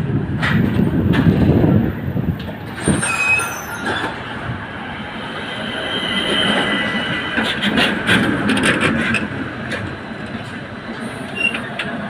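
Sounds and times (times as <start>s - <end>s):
tram running rumble: 0.0s - 12.0s
tram wheels squealing on rail: 2.7s - 9.3s, 10.9s - 12.0s.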